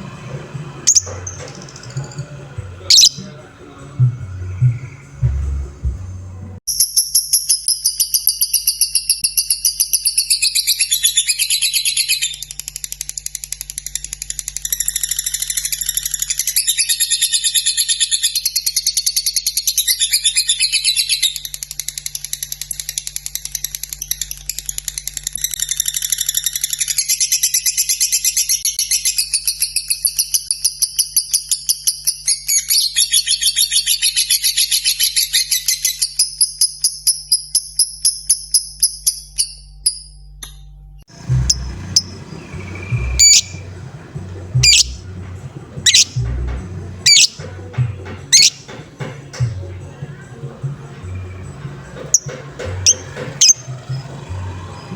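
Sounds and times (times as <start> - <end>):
bird trilling: 0.9 - 3.4, 41.1 - 48.8, 51.0 - 54.9.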